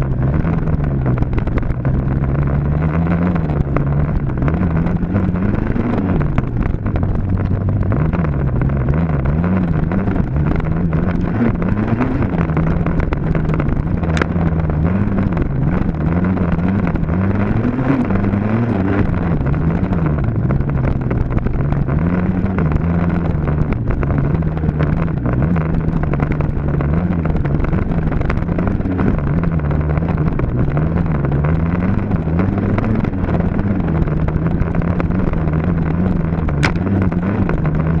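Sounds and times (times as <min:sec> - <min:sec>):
dirt bike engine revving: 0:07.9 - 0:38.0.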